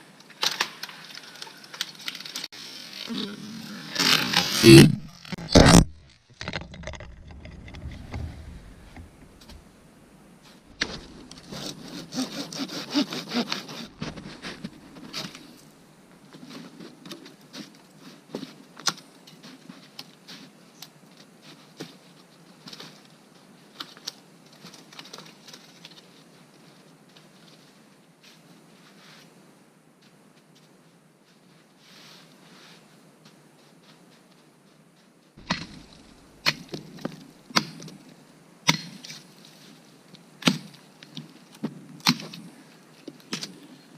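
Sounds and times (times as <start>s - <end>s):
wood scraping and rubbing: 3.8s - 9.6s, 10.9s - 15.4s.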